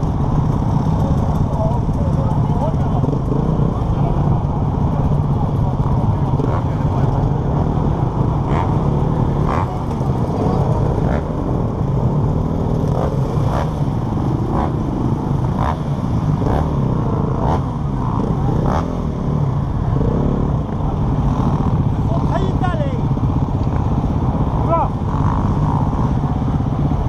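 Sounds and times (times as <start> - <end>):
motocross bike engine low revs: 4.9 - 22.4.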